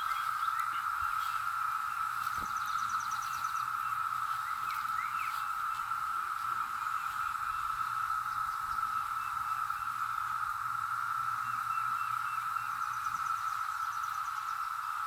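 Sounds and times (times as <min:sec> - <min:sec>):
cicadas droning: 0:00.0 - 0:15.0.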